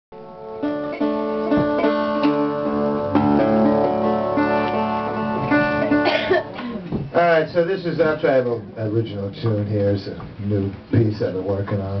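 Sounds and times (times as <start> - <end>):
resonator guitar plucked notes: 0.2 - 7.1.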